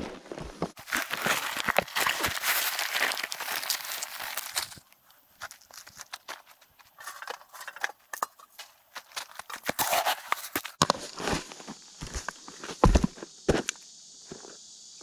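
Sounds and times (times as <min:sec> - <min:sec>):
short rustling: 0:00.8 - 0:10.8.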